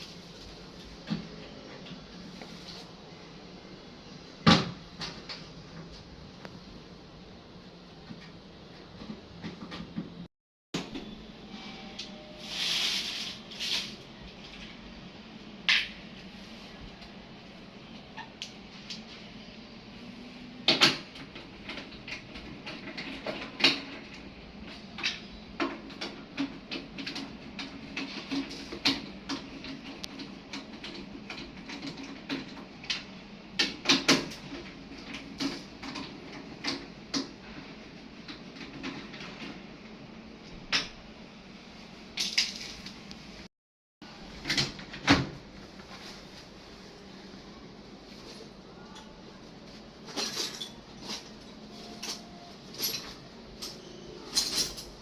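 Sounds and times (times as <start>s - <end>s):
metal and plastic parts clattering: 50.1s - 55.0s.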